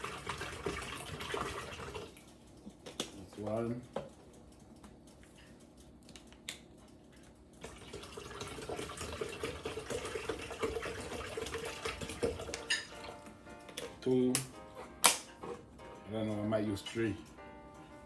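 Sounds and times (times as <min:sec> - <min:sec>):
water pouring into a container: 0:00.0 - 0:02.2, 0:07.6 - 0:12.6.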